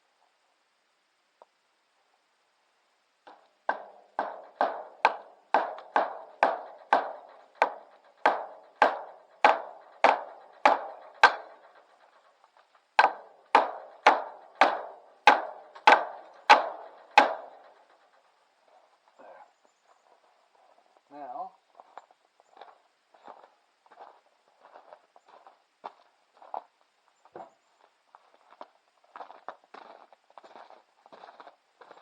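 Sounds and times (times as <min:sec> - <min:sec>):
hammer blows on wood: 0:03.3 - 0:11.8, 0:13.0 - 0:17.7.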